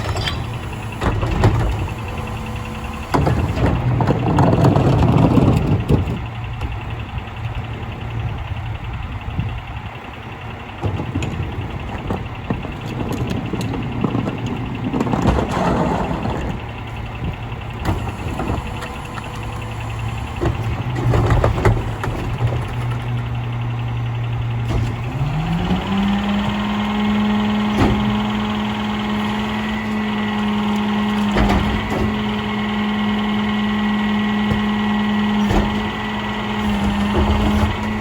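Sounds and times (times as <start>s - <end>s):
clattering and knocks: 0.0s - 6.8s, 10.8s - 16.8s
garbage truck diesel engine idling: 0.0s - 38.0s.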